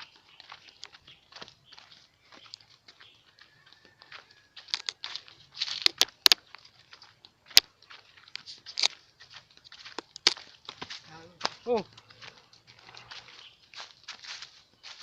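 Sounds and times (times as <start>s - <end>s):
twigs snapping: 4.6s - 6.6s, 8.6s - 9.0s, 9.8s - 11.0s
leaves crunching underfoot: 4.6s - 7.1s, 8.1s - 15.0s.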